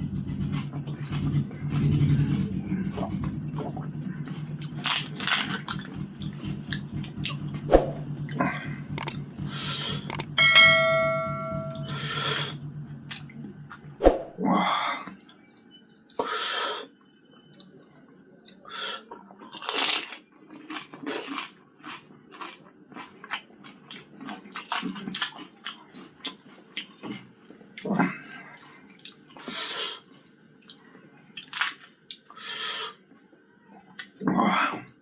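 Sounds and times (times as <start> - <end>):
crunching and chewing food: 0.0 - 10.3, 17.3 - 34.3.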